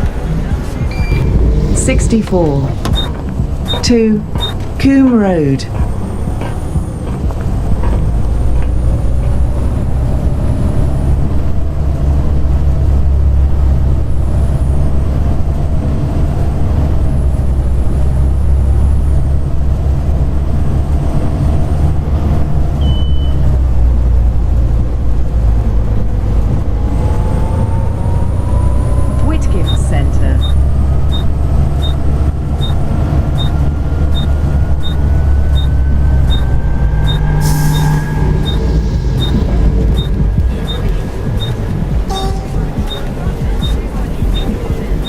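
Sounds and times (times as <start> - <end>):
bus engine deep rumble: 0.0 - 45.0
high engine whine: 0.0 - 45.0
brief high beep: 0.9 - 1.4, 22.8 - 23.4, 34.2 - 40.1, 41.4 - 43.0.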